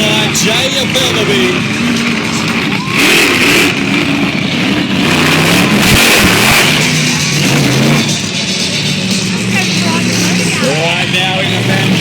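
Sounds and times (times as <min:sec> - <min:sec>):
monster truck engines revving: 0:00.0 - 0:12.0
music playing: 0:06.0 - 0:12.0.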